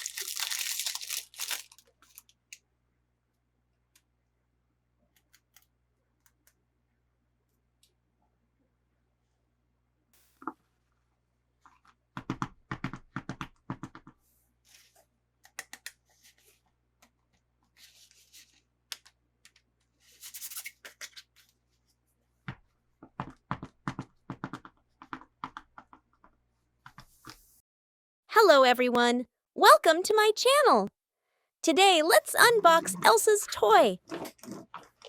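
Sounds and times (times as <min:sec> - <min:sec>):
packaging crinkling: 0:00.0 - 0:02.6.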